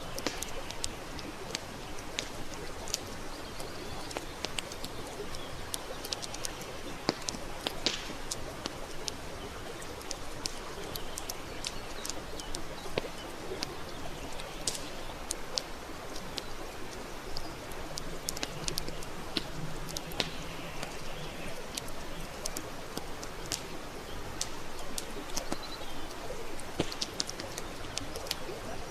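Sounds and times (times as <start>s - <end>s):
campfire crackling: 0.0s - 28.9s.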